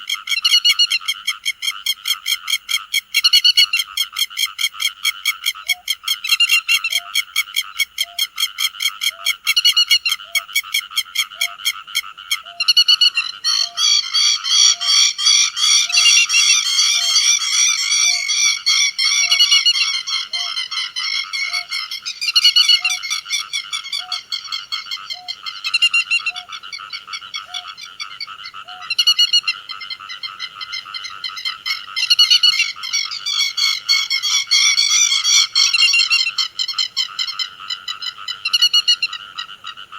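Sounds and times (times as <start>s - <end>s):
lapwings calling: 5.5s - 39.5s.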